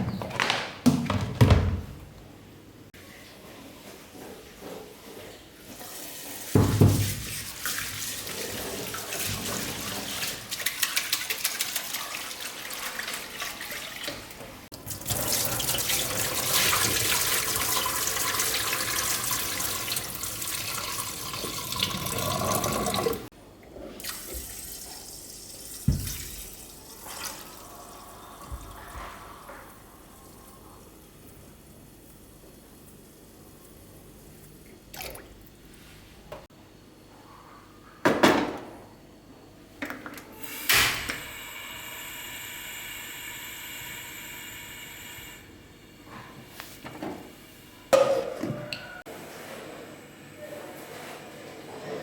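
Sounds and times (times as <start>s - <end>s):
tap running into sink: 25.8s - 26.4s.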